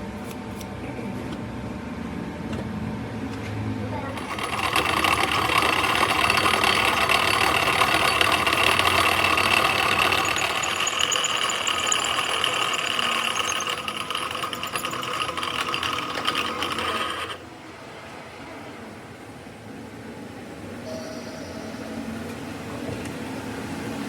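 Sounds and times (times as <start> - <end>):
workshop machinery whining and rattling: 2.2 - 17.9.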